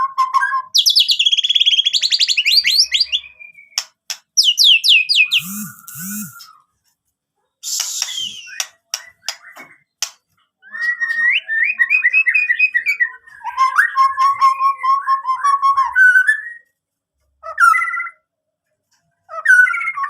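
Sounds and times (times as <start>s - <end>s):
bird singing fluting whistles: 0.2s - 3.8s, 4.4s - 6.6s, 7.6s - 9.7s.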